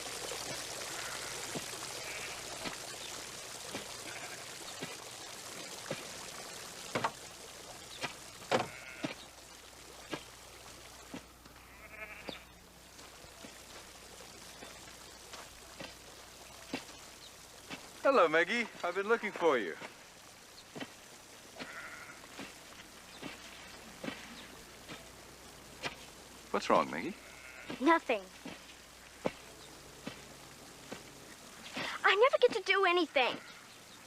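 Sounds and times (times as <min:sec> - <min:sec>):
water trickling: 0:00.0 - 0:34.0
sheep bleating: 0:00.9 - 0:02.5, 0:04.0 - 0:04.5, 0:08.6 - 0:09.2, 0:11.6 - 0:12.5, 0:21.6 - 0:22.3, 0:27.0 - 0:28.0.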